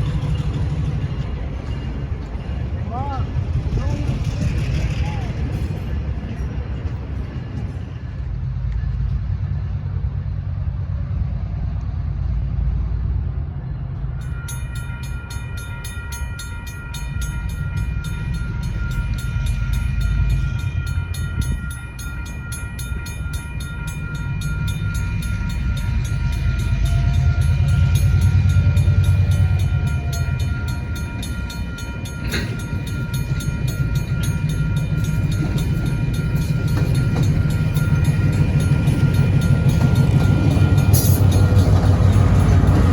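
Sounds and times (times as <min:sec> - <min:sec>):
diesel locomotive rumbling past: 0:00.0 - 0:42.9
high steady ringing: 0:14.2 - 0:42.9.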